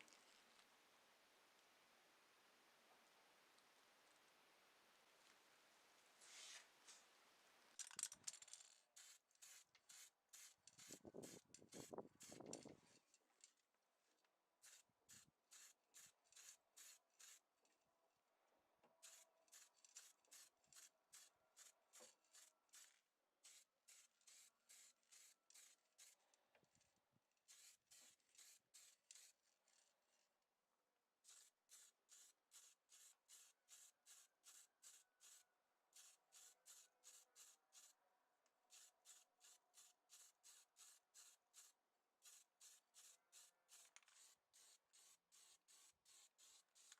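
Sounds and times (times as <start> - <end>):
rapid rubbing strokes: 38.7 - 46.9.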